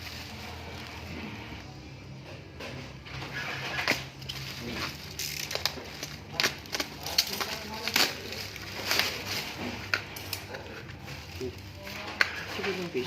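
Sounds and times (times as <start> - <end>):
packaging crinkling and rustling: 3.5 - 13.0.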